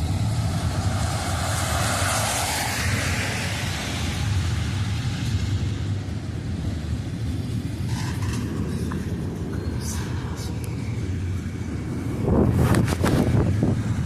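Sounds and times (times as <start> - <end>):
freight train rumbling: 0.0 - 14.0.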